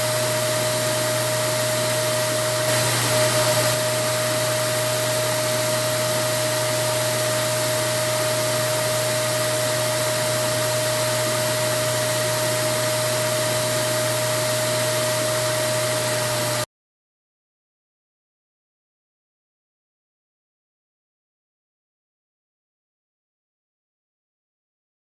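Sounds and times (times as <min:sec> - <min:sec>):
vacuum cleaner running: 0:00.0 - 0:16.7.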